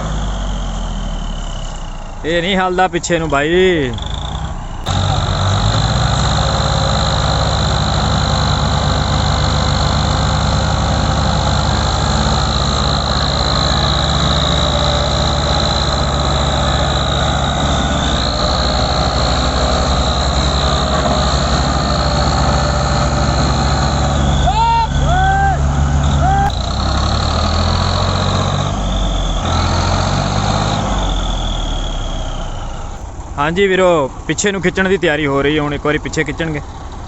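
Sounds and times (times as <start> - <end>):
tractor engine straining: 0.0 - 37.0
high-pitched whine: 3.2 - 29.6.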